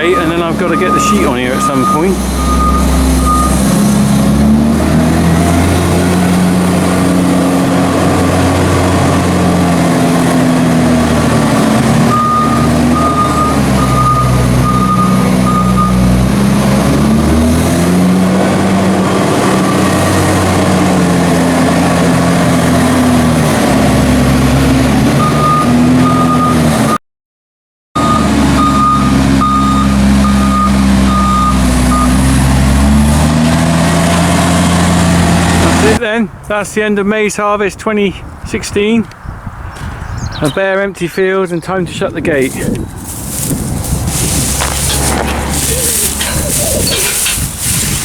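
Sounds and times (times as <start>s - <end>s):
reversing alarm beeping: 0.0s - 3.7s, 12.1s - 16.0s, 25.2s - 27.0s, 28.0s - 32.2s
tractor engine running: 0.0s - 27.0s, 28.0s - 36.0s, 42.3s - 48.0s.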